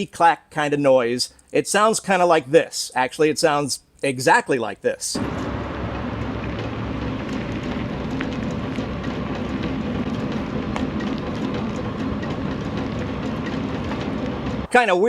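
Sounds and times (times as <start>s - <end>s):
road noise from rolling tyres: 5.2s - 14.7s
wheel covers clicking: 5.2s - 14.7s.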